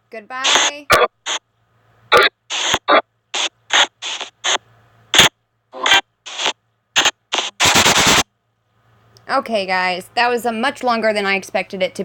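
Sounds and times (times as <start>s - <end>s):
faint steady hum: 0.0s - 12.0s
chopped bursts of radio noise: 0.4s - 1.4s, 2.1s - 8.3s.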